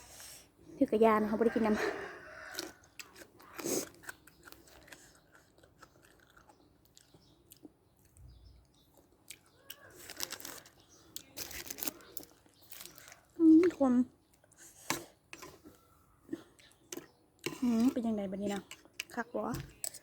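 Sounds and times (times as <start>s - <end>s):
person chewing crunchy food: 2.2s - 20.0s.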